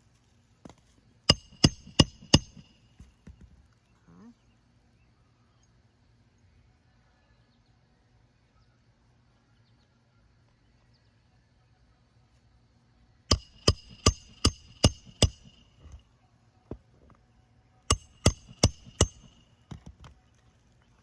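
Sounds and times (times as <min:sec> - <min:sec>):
hammer striking nails: 0:01.3 - 0:02.8, 0:13.3 - 0:16.0, 0:17.9 - 0:20.1.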